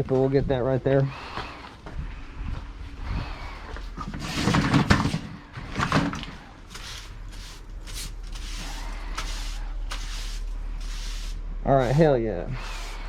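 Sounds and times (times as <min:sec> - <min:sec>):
light scraping or brushing: 0:03.5 - 0:13.0
clutter clattering and scraping: 0:03.6 - 0:11.3.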